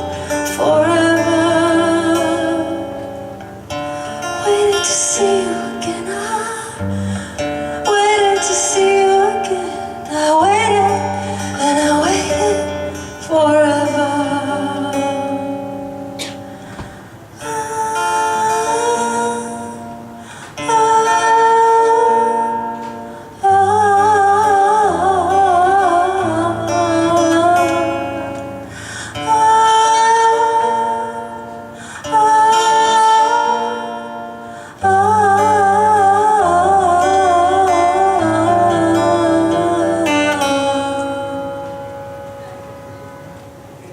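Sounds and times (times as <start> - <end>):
guitar and bass: 0.0 - 17.5, 33.6 - 43.9
woman singing with vibrato: 0.0 - 42.5.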